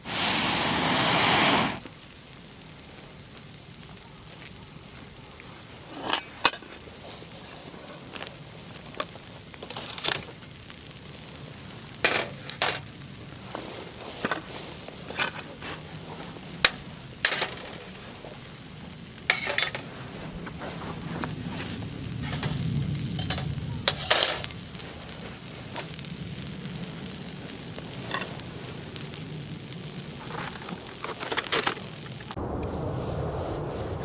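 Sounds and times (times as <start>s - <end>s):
campfire sizzle and rush: 0.0s - 34.0s
sharp clicks and clatters: 30.2s - 32.4s.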